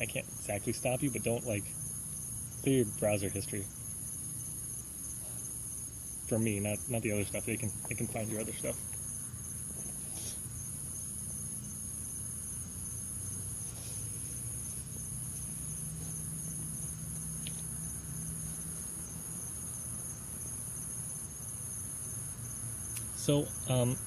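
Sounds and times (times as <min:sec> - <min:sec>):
thin steady tone: 0:00.0 - 0:19.1
high-pitched insect chirring: 0:00.0 - 0:24.0.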